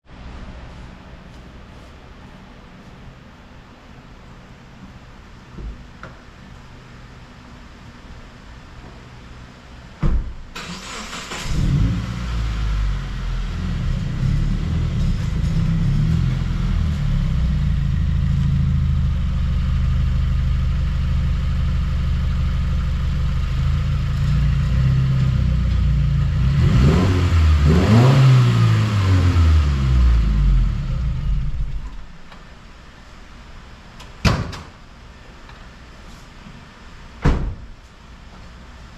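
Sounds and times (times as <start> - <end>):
car engine starting and idling: 8.2 - 34.2
car engine revving: 10.6 - 18.7, 24.2 - 31.8.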